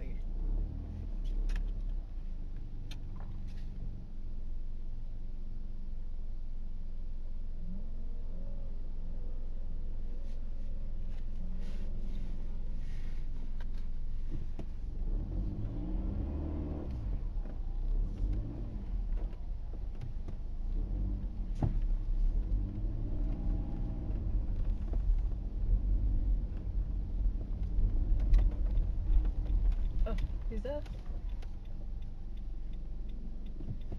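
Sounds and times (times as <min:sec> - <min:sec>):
low road rumble: 0:00.0 - 0:33.9
car engine revving: 0:14.8 - 0:33.9.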